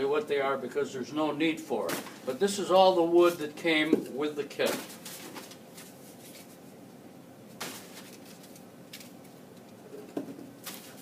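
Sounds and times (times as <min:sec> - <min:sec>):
plastic parts rustling and tapping: 0:07.6 - 0:11.0.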